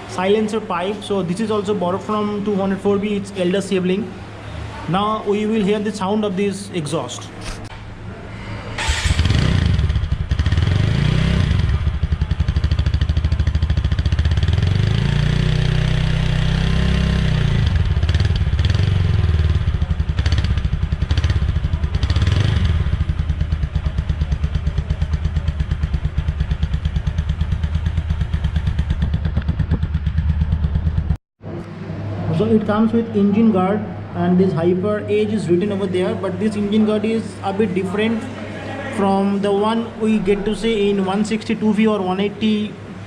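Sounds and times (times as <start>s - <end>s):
motorcycle engine idling and revving: 8.8s - 31.2s.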